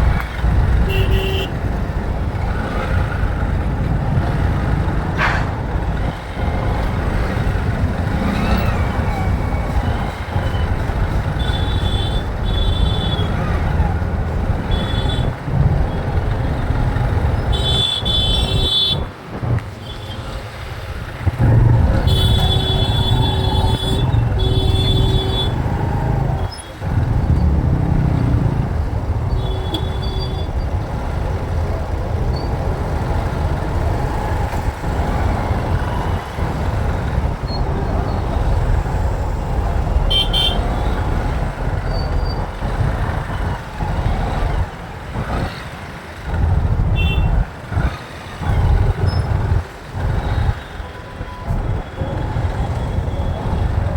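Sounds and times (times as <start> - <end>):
road traffic rumble: 0.0 - 53.9
vehicle horns honking: 0.8 - 1.6, 10.4 - 13.5, 14.6 - 15.3, 17.4 - 19.1, 21.4 - 26.2, 29.3 - 30.6, 40.0 - 41.1, 46.9 - 47.4.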